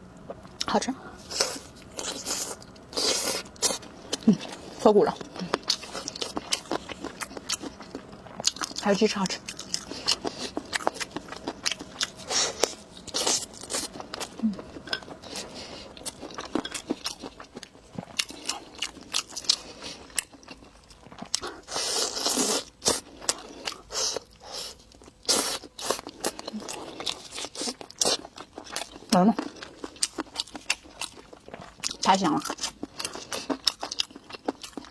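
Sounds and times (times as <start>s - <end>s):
crunchy bites and chewing: 9.4s - 34.9s.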